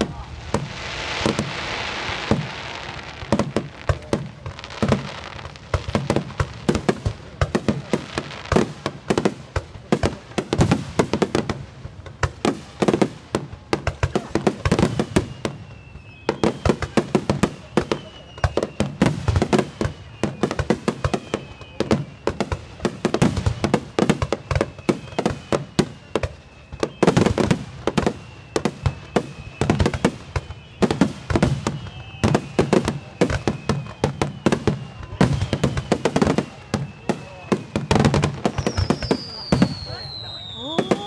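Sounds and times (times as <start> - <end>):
crackling hiss: 0.0 - 41.0
firework bangs: 0.0 - 41.0
faint high whistle: 14.1 - 41.0.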